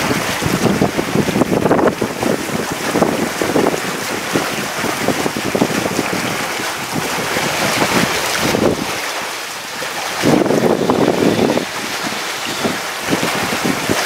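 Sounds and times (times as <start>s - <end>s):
wind noise on microphone: 0.0s - 14.0s.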